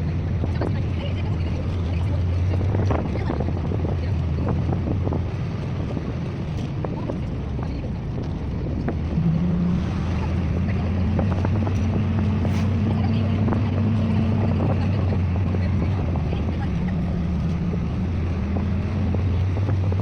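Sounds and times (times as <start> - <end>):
engine revving: 0.0 - 20.0
vehicle engine droning: 0.0 - 20.0.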